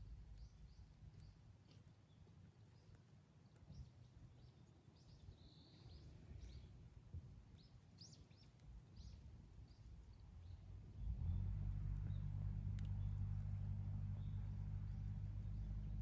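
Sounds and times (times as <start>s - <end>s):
small birds chirping: 0.0s - 16.0s
low steady rumble: 8.6s - 16.0s.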